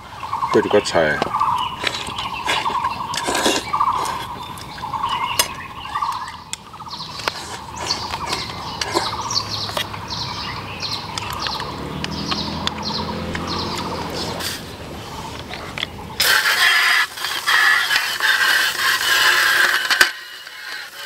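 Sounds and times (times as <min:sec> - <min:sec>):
small bird chirping: 0:00.0 - 0:16.2
sharp clicks: 0:10.8 - 0:14.6.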